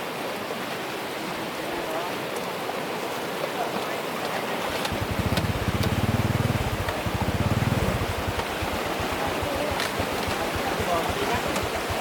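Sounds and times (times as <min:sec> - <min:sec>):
floodwater rushing: 0:00.0 - 0:12.0
low fast-pulsing rumble: 0:04.9 - 0:12.0.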